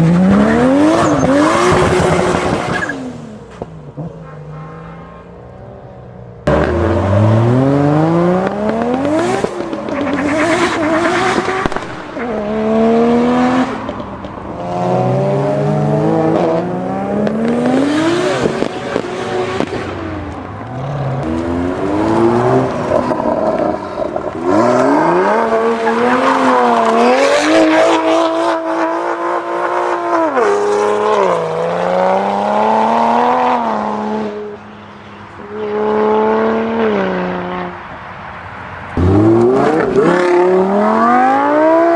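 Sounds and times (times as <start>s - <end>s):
sports car engines accelerating: 5.4s - 34.6s, 38.9s - 41.9s.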